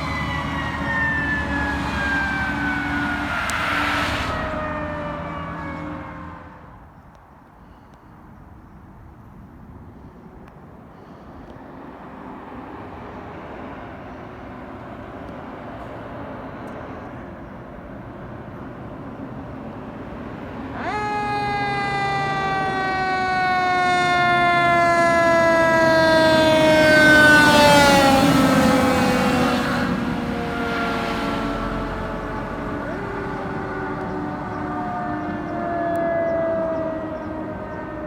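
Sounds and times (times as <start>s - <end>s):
siren wailing: 0.0s - 6.7s, 20.4s - 38.0s
fire truck engine and road noise: 0.0s - 38.0s.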